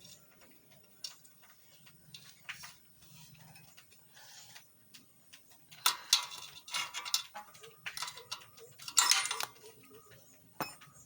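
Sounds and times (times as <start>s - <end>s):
metal parts clinking: 5.7s - 9.9s.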